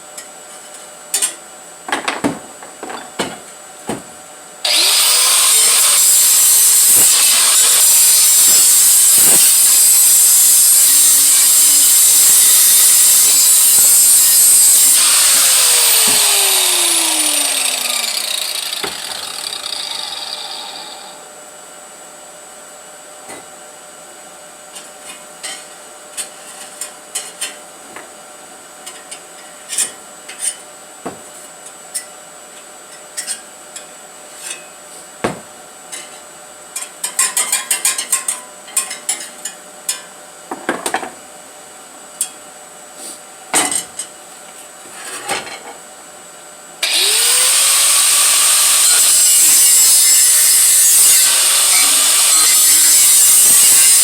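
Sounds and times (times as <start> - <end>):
power tool grinding metal pipe: 4.6 - 21.2, 46.8 - 54.0
hand tools clicking and knocking: 17.5 - 19.8.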